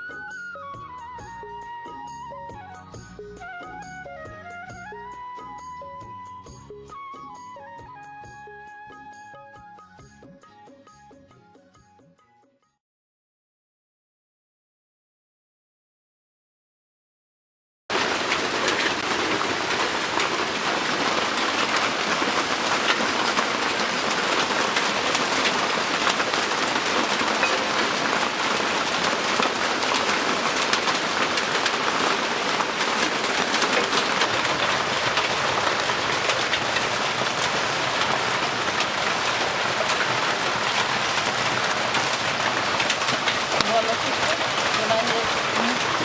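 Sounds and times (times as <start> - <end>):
heavy rain on a roof: 0.0 - 6.2, 17.9 - 46.0.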